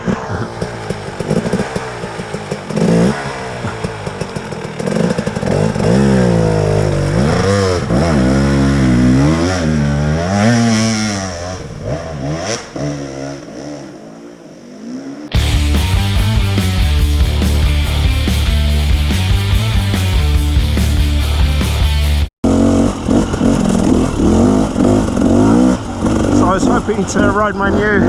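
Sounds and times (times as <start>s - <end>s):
dirt bike engine revving: 0.0s - 28.0s
loud rock music: 15.3s - 22.3s.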